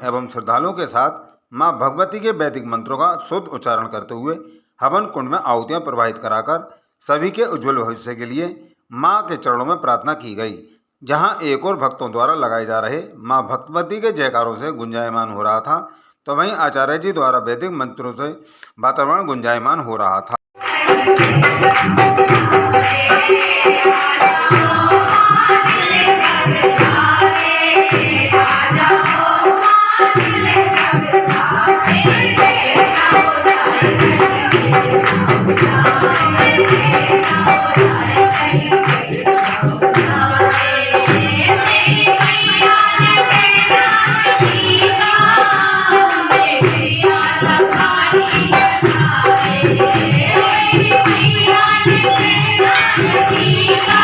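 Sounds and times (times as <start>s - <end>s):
held drone tones: 20.6s - 45.4s
devotional singing: 20.6s - 54.0s
jingling tambourine percussion: 20.6s - 54.0s.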